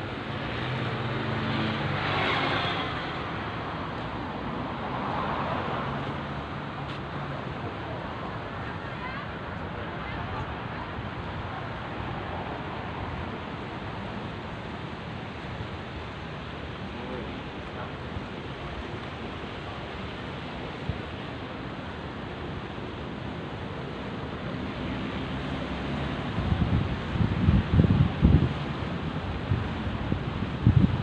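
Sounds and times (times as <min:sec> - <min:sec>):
sea surf: 0:00.0 - 0:31.0
wind buffeting microphone: 0:26.2 - 0:31.0.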